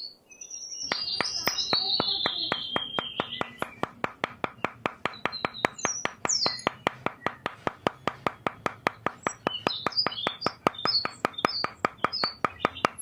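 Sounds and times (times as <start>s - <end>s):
birds chirping: 0.0s - 13.0s
rapid even clicking: 0.9s - 13.0s.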